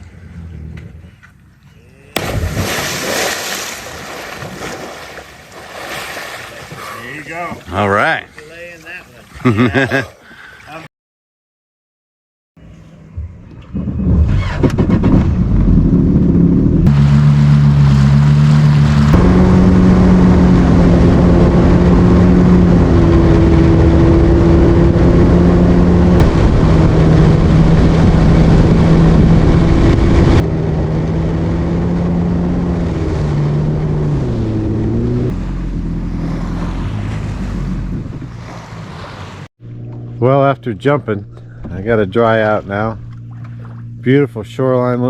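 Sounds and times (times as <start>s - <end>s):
jet ski engine running: 12.6s - 45.0s.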